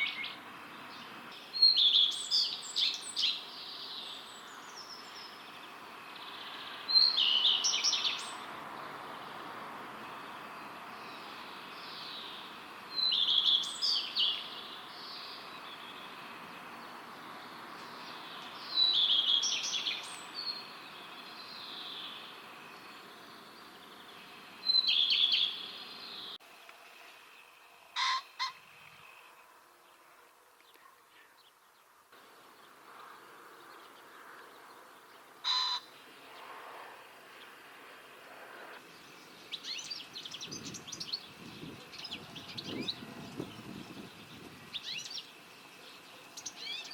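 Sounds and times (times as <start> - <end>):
redstart singing: 0.0 - 30.0
pheasant crowing: 27.9 - 28.6, 35.4 - 35.9.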